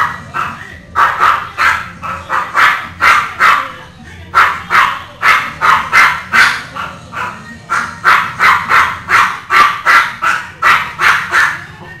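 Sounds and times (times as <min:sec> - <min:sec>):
dog barking: 0:00.0 - 0:11.7.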